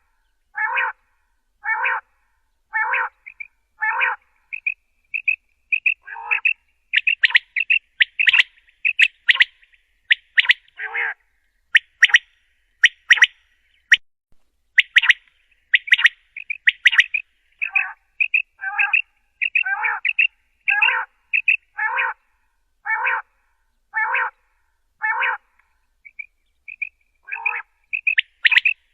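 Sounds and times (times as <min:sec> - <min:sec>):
quail calling: 0:00.6 - 0:01.0, 0:01.6 - 0:02.1, 0:02.7 - 0:13.4, 0:14.8 - 0:22.2, 0:22.8 - 0:23.3, 0:24.0 - 0:24.4, 0:25.0 - 0:28.9.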